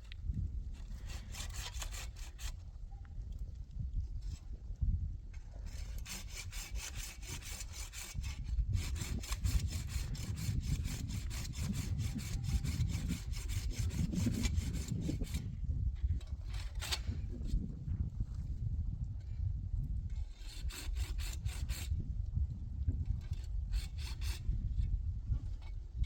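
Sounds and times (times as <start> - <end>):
hand saw cutting wood: 0.8 - 2.6, 5.6 - 15.5, 16.3 - 17.3, 20.2 - 21.9, 23.2 - 24.6.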